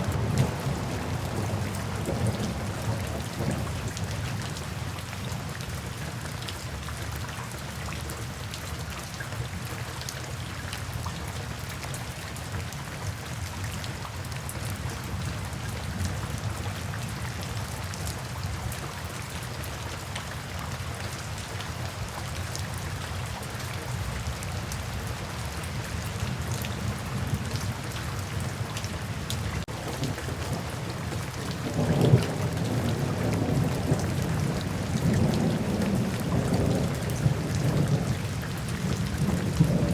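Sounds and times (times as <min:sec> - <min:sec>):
steady rain: 0:00.0 - 0:39.9
thunder rumbling: 0:29.7 - 0:39.9.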